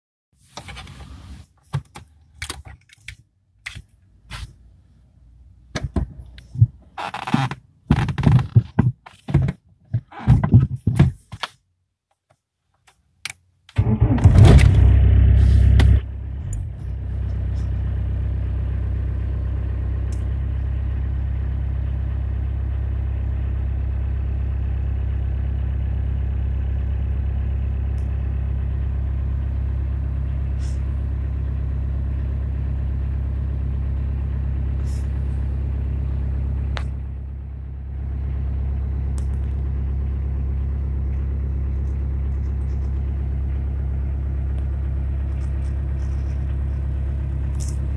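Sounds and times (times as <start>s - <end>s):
knocks and rattles: 5.8s - 11.4s
diesel engine starting and idling: 13.8s - 47.9s.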